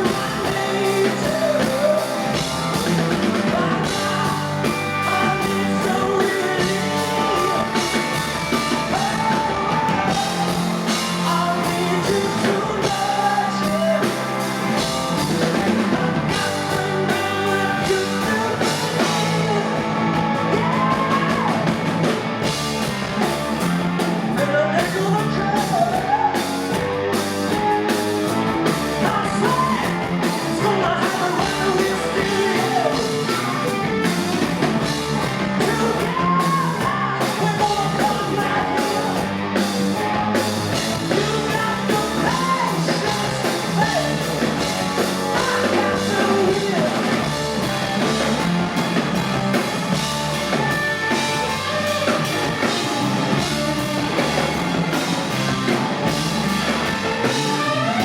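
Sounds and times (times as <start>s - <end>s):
man singing lead vocal: 0.0s - 21.9s, 23.6s - 48.2s
electric guitars: 0.0s - 58.0s
steady drum beat: 0.0s - 58.0s.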